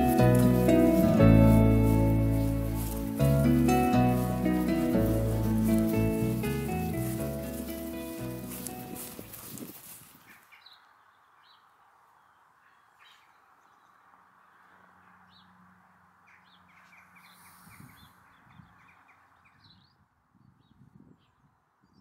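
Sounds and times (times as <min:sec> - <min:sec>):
faint birdsong chirps: 0:10.3 - 0:22.0.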